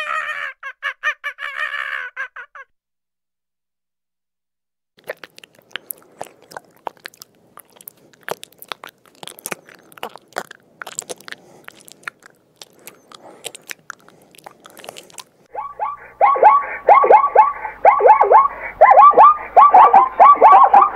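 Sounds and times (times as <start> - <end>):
snail crunching leaf: 5.0 - 15.5
repeated falling tones: 15.5 - 20.9.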